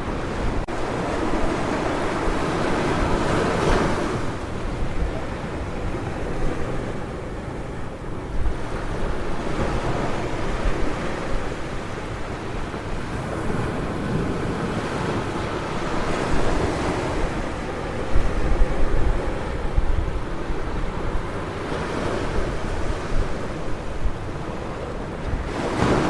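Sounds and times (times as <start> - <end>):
ocean surf breaking: 0.0 - 26.0
wind buffeting microphone: 0.0 - 26.0.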